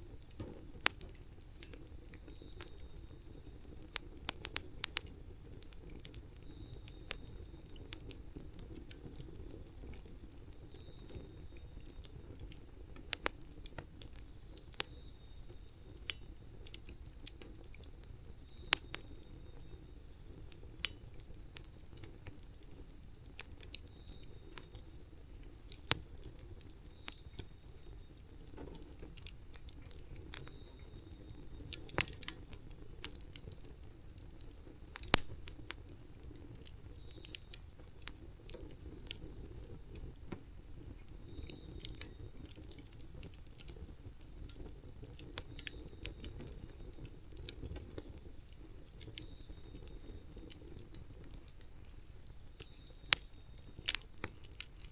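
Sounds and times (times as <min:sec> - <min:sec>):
campfire crackling and popping: 0:00.0 - 0:54.9
low steady flames: 0:00.0 - 0:54.9.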